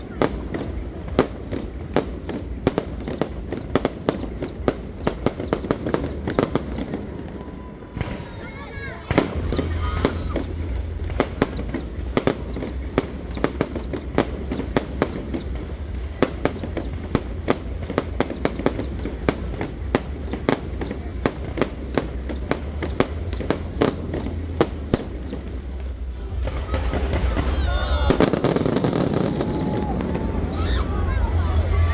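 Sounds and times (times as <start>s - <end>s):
fireworks cracking and banging: 0.0s - 31.9s
low rumble: 9.1s - 31.9s.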